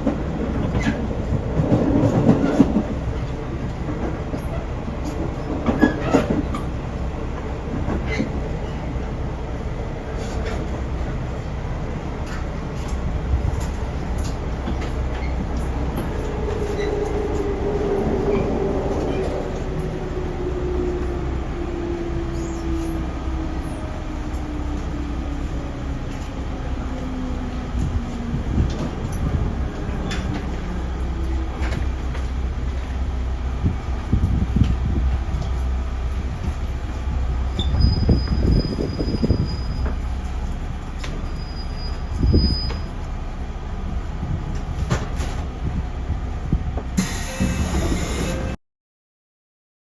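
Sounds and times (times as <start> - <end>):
train low rumble: 0.0 - 48.6
train motor whine: 46.8 - 48.6.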